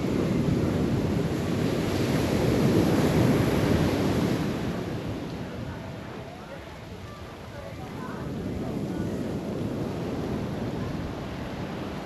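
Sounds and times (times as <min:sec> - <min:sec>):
ocean surf breaking: 0:00.0 - 0:06.0
wind on microphone: 0:00.0 - 0:12.0.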